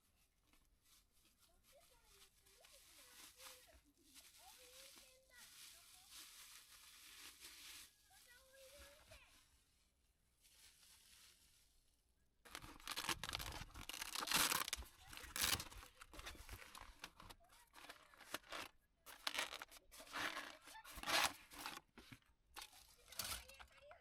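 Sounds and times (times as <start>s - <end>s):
dry crunching and rustling: 0.1s - 9.4s, 12.5s - 24.0s.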